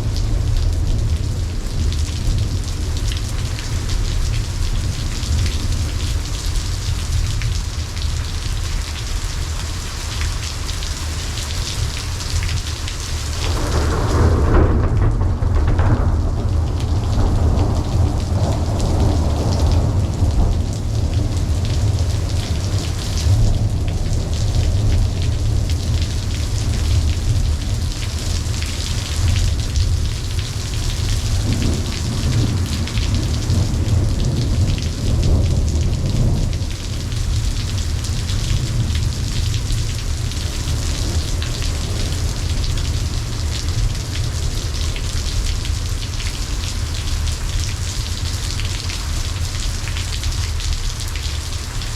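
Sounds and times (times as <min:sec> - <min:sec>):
low rolling thunder: 0:00.0 - 0:08.3, 0:11.4 - 0:50.6
steady rain: 0:00.0 - 0:51.9.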